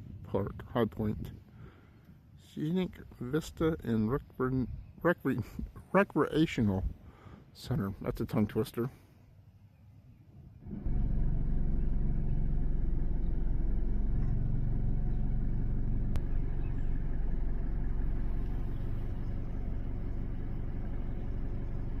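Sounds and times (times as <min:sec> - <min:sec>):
car engine rumbling: 0:10.6 - 0:22.0.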